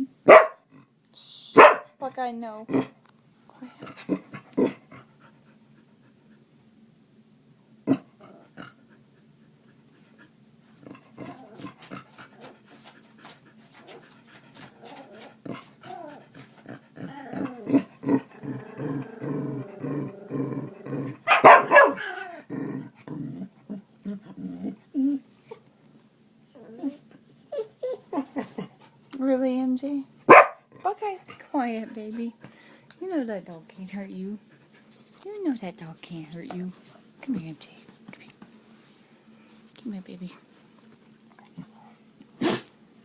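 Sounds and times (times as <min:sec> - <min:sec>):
dog barking: 0:00.3 - 0:00.6, 0:01.6 - 0:02.0, 0:21.3 - 0:22.1, 0:30.3 - 0:30.7
dog growling rhythmically: 0:02.6 - 0:03.0, 0:03.6 - 0:05.6, 0:07.8 - 0:09.3, 0:10.1 - 0:12.8, 0:13.6 - 0:25.5.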